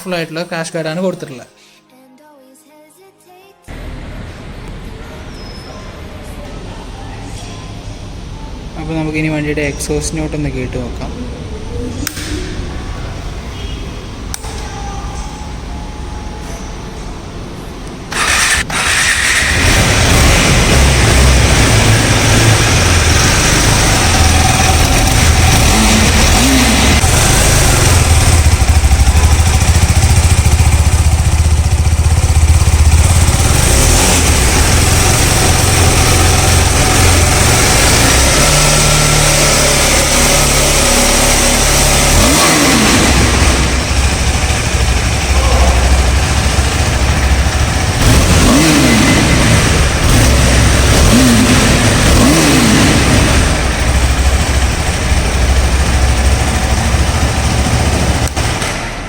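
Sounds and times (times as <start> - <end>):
motorcycle engine idling: 11.4 - 17.4, 18.1 - 58.8
motorcycle throttle blips: 18.1 - 59.0.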